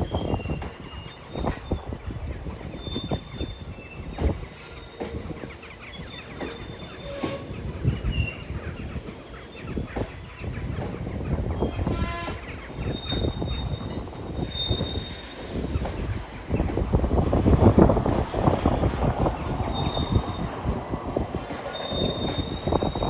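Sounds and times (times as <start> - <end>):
train wagons rumbling and knocking: 0.0 - 23.0
high-pitched wheel squeals: 2.7 - 5.3, 5.9 - 10.5, 12.9 - 15.4, 19.6 - 20.6, 21.5 - 23.0.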